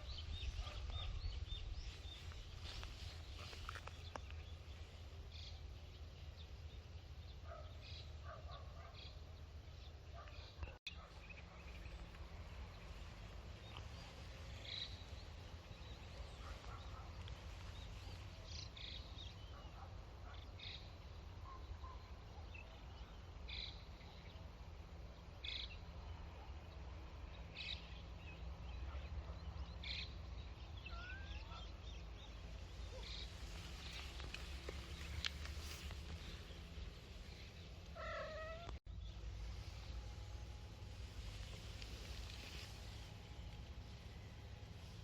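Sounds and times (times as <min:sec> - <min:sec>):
steady low rumble: 0:32.3 - 0:45.0.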